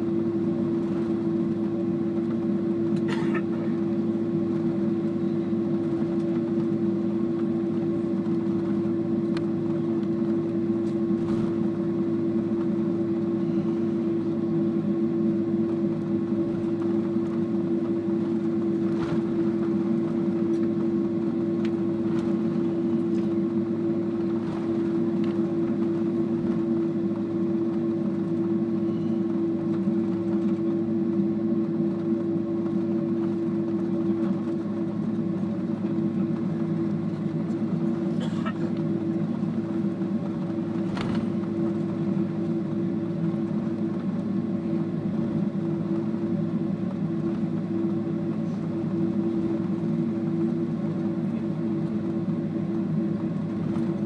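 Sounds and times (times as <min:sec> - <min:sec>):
cabin air system hum: 0:00.0 - 0:54.0
jet engines idling: 0:00.0 - 0:54.0.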